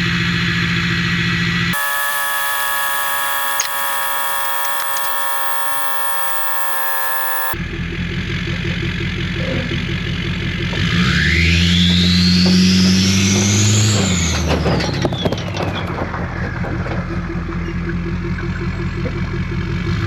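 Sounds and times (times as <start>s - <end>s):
high-pitched whine over hiss: 1.8s - 7.6s.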